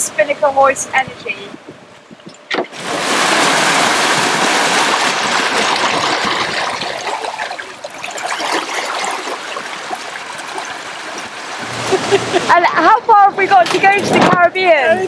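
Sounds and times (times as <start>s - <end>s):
foaming water rushing: 2.7s - 14.0s.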